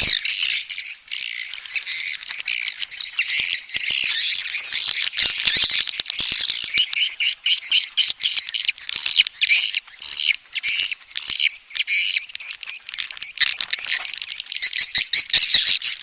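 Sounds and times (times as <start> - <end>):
swiftlets twittering: 0.0 - 0.2.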